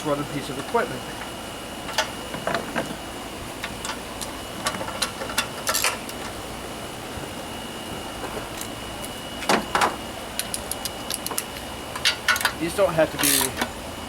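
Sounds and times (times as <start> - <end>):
metal tools and parts clinking: 3.8 - 6.4, 10.4 - 13.7.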